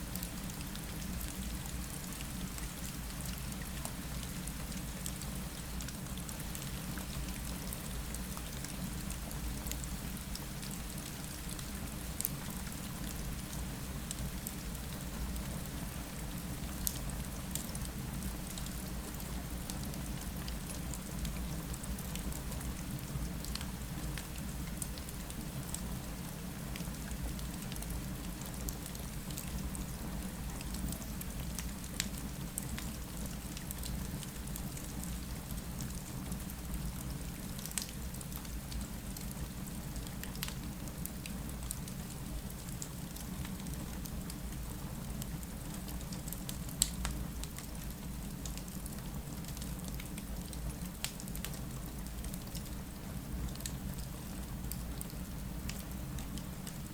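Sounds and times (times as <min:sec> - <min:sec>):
rain falling against window: 0:15.1 - 0:56.9.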